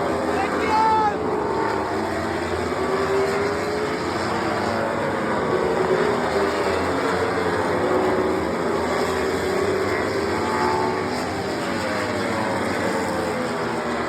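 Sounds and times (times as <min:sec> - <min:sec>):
racing motorcycles passing: 0:00.0 - 0:14.0.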